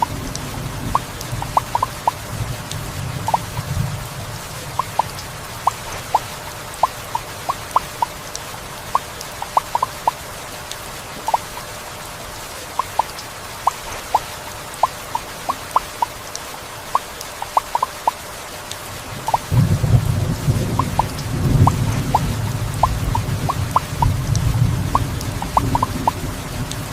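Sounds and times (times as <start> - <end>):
heavy rain falling: 0.0 - 26.9
water drops plinking: 0.9 - 2.2, 3.3 - 3.6, 4.8 - 8.2, 8.9 - 10.2, 11.2 - 11.7, 12.8 - 16.2, 16.9 - 18.2, 19.3 - 19.6, 20.8 - 26.2.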